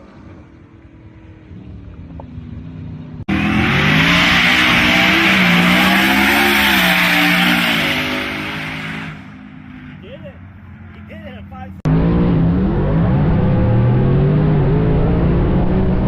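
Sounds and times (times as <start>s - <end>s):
truck engine revving: 1.5s - 10.0s, 11.8s - 16.0s.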